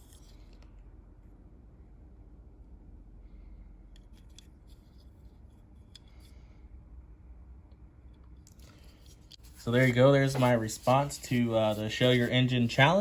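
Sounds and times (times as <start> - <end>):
clicks and rubs of small objects: 0.0 - 0.8, 3.9 - 6.4, 8.1 - 13.0
low steady hum: 0.0 - 13.0.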